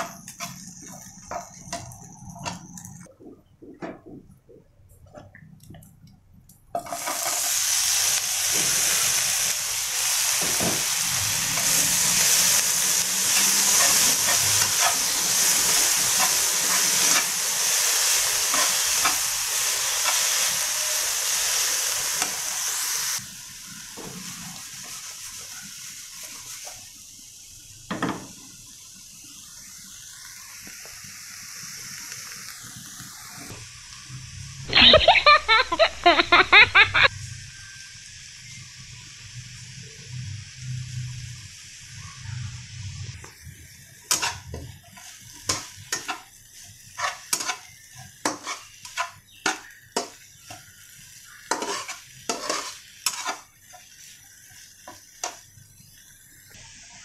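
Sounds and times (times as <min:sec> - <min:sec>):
food sizzling in hot oil: 0:00.0 - 0:03.1, 0:06.7 - 0:57.0
metal spatula scraping and tapping: 0:47.0 - 0:50.2, 0:51.5 - 0:53.5.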